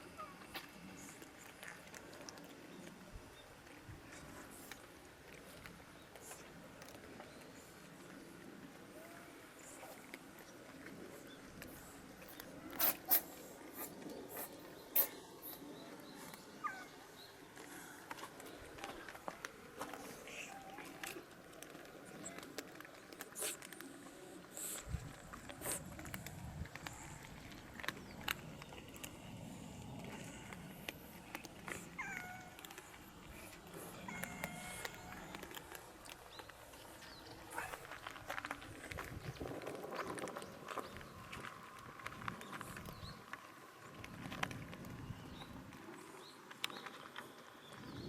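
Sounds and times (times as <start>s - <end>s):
cats crunching dry food: 0.0s - 48.0s
cat meow: 34.1s - 35.4s.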